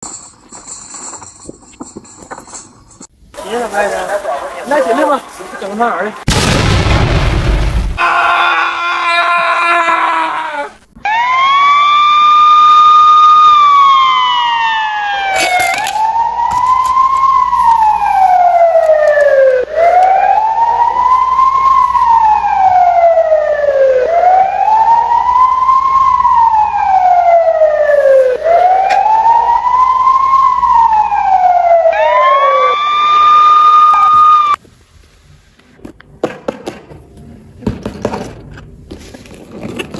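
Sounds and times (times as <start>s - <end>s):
emergency vehicle siren wailing: 11.0s - 34.6s.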